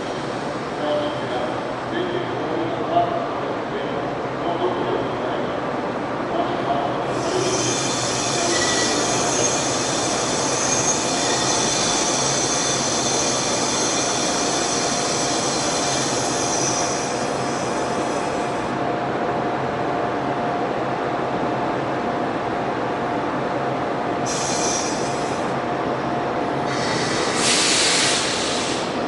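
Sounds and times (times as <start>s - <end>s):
locomotive hum: 0.0s - 29.0s
wheel and brake squeal: 7.2s - 17.1s.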